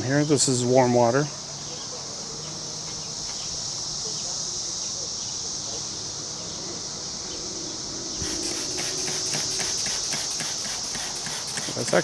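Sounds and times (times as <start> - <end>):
high insect chirring: 8.1 - 12.0
spray bottle squirting: 8.2 - 12.0.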